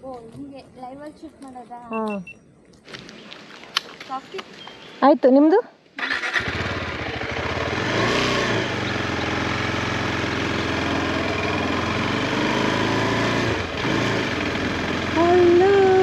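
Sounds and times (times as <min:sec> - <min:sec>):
motorcycle engine idling: 0:06.0 - 0:12.5, 0:13.6 - 0:16.0.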